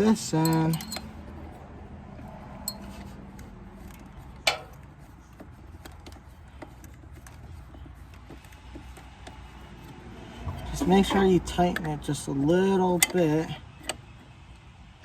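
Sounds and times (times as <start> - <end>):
small metal parts ticking: 0.3 - 1.1.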